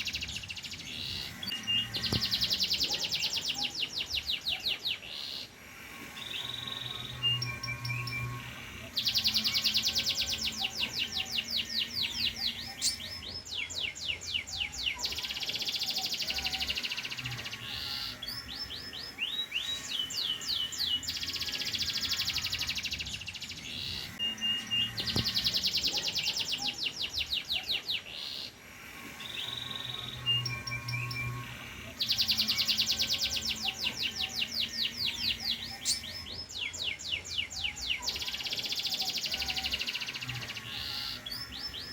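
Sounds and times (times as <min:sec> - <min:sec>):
canary singing: 0:00.0 - 0:41.9.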